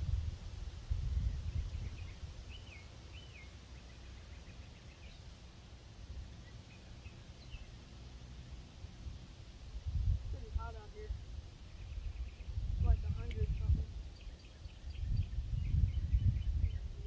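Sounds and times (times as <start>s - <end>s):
wind rumble on microphone: 0.0s - 2.8s, 8.9s - 17.0s
faint bird chirps: 14.1s - 17.0s.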